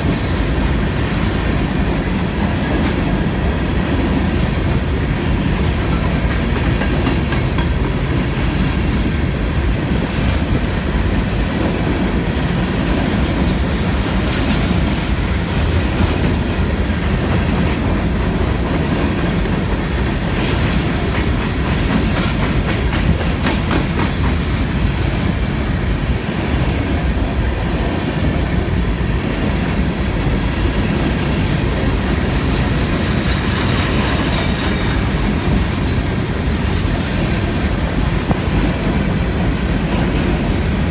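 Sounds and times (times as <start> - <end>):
freight train rolling past: 0.0 - 40.9
faint high wheel squeal: 24.1 - 25.8.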